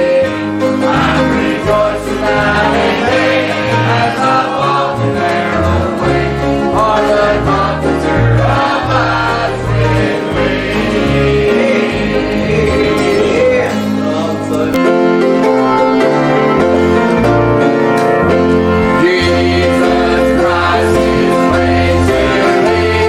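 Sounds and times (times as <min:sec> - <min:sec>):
choir singing a gospel hymn: 0:00.0 - 0:14.8, 0:15.4 - 0:23.0
instrumental accompaniment: 0:00.0 - 0:23.0.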